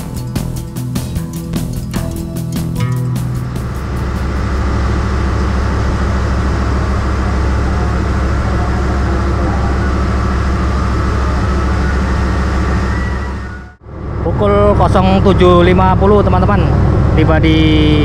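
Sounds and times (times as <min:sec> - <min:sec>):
moving train rumble: 0:00.0 - 0:18.0.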